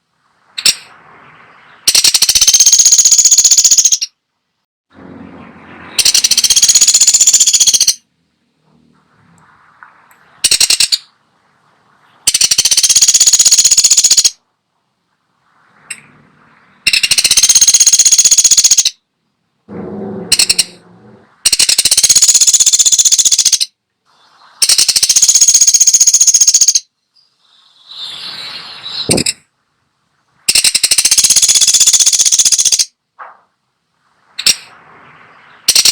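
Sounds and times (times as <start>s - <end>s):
woodpecker drumming: 1.8s - 4.2s, 6.0s - 8.1s, 9.4s - 11.2s, 12.1s - 14.4s, 15.8s - 19.0s, 19.7s - 23.8s, 24.6s - 28.0s, 30.5s - 33.3s, 35.5s - 35.9s.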